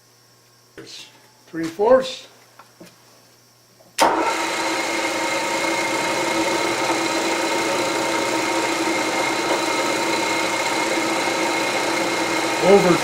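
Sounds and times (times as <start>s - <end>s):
milling machine motor humming: 4.1s - 13.0s.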